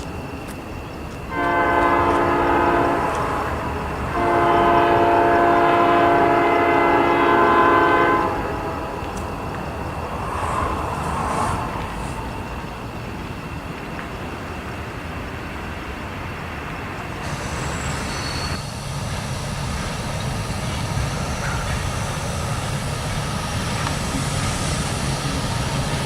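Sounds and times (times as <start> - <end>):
train running noise: 0.0 - 26.0
locomotive air horn blasts: 1.3 - 9.0.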